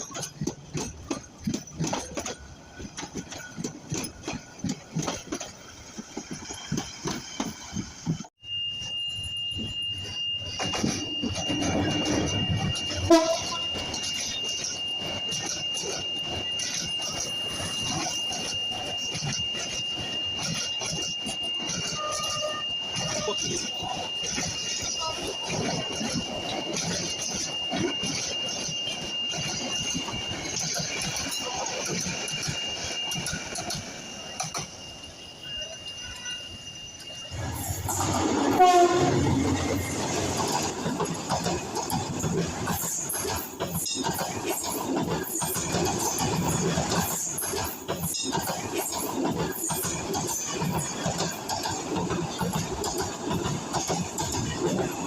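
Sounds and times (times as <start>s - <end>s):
train rattling past: 0.0s - 55.0s
diesel locomotive horn: 12.8s - 13.7s, 21.8s - 23.6s, 37.4s - 40.0s.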